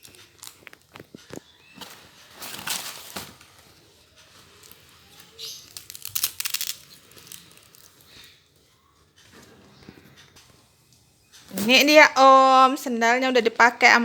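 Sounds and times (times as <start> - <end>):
rustling and crinkling handling: 0.0 - 11.8.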